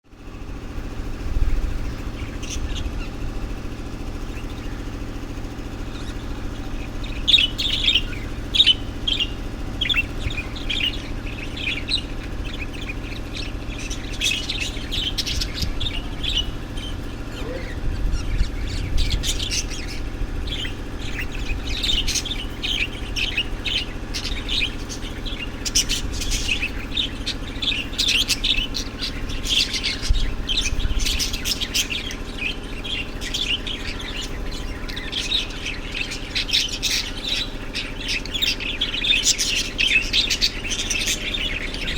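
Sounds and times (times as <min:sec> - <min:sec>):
low mechanical hum: 0:00.0 - 0:41.9
small birds chirping: 0:00.1 - 0:41.9.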